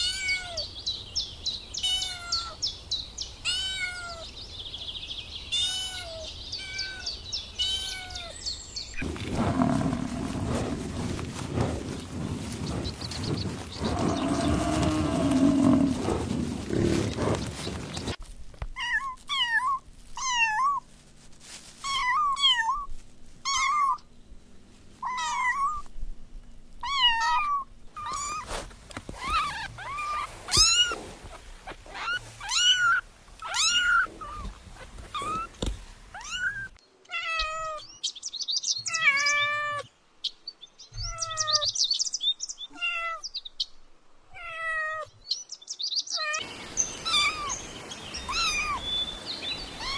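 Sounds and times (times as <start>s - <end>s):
kittens meowing: 46.3s - 49.9s.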